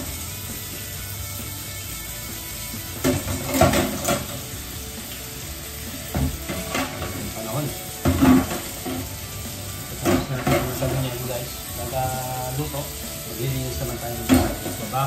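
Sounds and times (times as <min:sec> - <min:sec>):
tap running into steel sink: 0:02.9 - 0:04.5, 0:06.0 - 0:07.4, 0:10.0 - 0:11.1, 0:14.2 - 0:14.9
splashes and knocks: 0:03.0 - 0:04.4.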